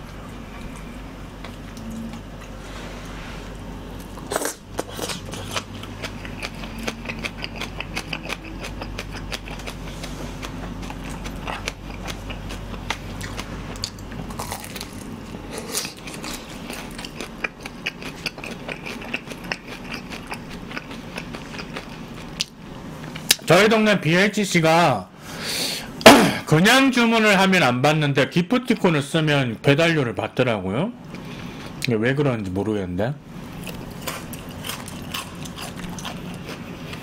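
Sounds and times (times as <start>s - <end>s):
chewing crunches: 4.0s - 23.4s, 33.5s - 37.0s.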